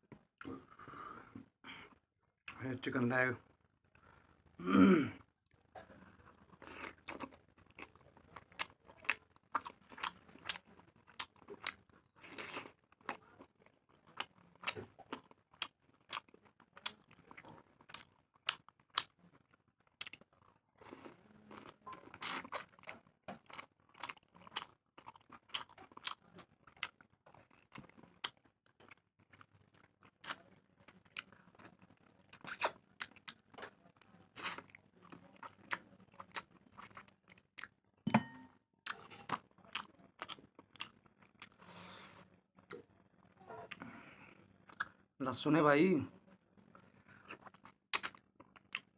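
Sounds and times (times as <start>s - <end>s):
person chewing wetly: 5.9s - 41.8s, 44.7s - 45.0s, 47.0s - 48.9s.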